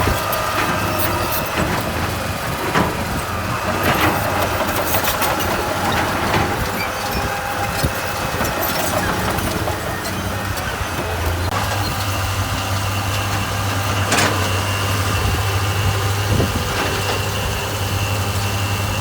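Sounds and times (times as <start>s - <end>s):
heavy machine engine running: 0.0s - 19.0s.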